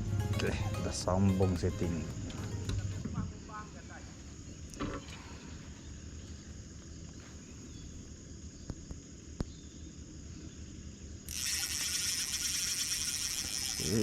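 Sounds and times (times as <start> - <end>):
high-pitched insect trill: 0.0 - 4.8, 5.4 - 14.0
fishing tackle clicks: 11.3 - 14.0.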